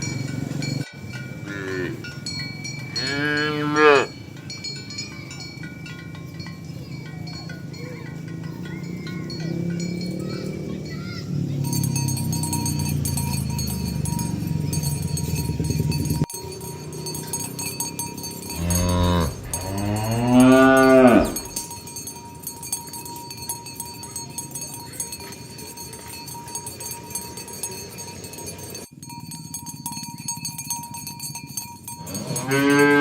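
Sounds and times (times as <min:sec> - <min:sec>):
cattle mooing: 0:01.4 - 0:02.0, 0:03.0 - 0:04.1, 0:08.4 - 0:12.1, 0:18.5 - 0:21.6, 0:32.1 - 0:33.0.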